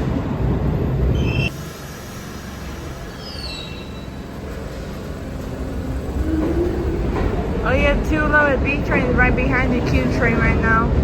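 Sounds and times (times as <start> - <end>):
subway train rumble: 0.0 - 11.0
metallic wheel squeals: 2.6 - 4.4.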